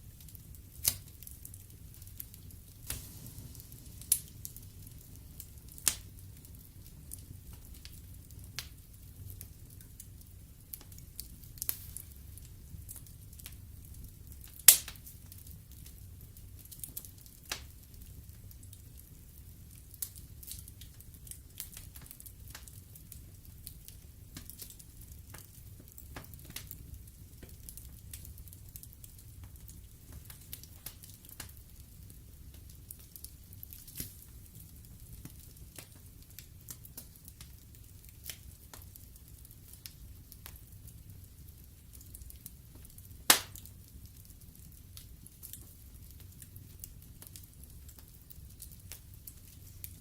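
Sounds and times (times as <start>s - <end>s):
low rumble of flames: 0.0s - 50.0s
wood fire crackling and popping: 0.0s - 50.0s.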